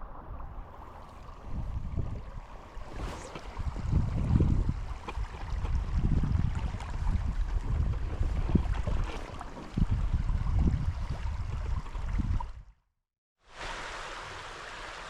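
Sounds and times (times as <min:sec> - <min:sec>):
wind gusting on microphone: 0:00.0 - 0:12.7
stream rushing: 0:00.6 - 0:06.0, 0:13.5 - 0:15.0.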